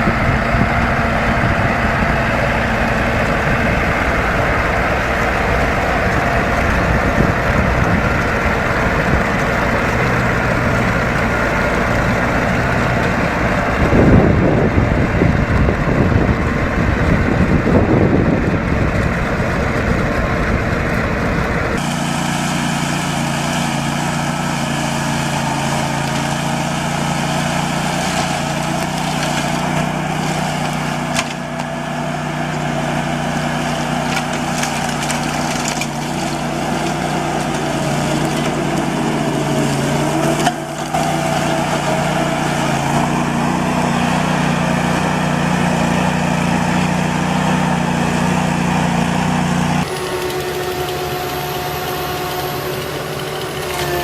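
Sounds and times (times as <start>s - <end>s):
heavy machinery engine hum: 0.0s - 54.0s
cracking crunching noise: 34.0s - 43.2s.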